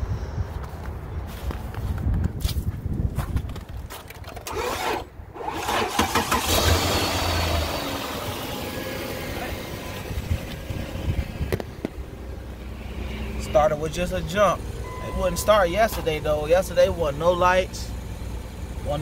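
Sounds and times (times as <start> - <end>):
car engine starting and idling: 4.0 - 19.0.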